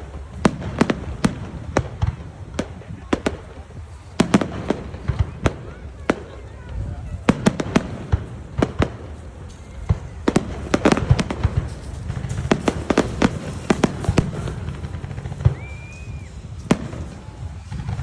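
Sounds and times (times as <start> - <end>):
fireworks bangs and crackles: 0.0 - 18.0
firework whistle: 7.2 - 18.0.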